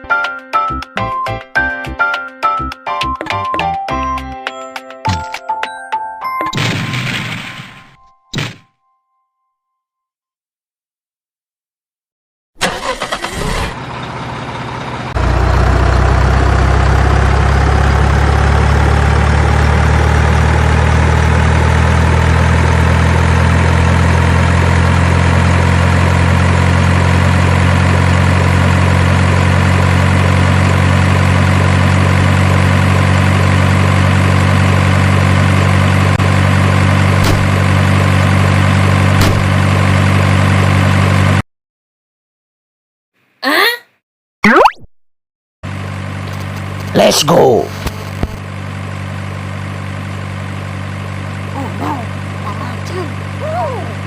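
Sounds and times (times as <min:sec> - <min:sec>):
heavy engine rumbling: 0:12.6 - 0:41.4, 0:45.7 - 0:54.0.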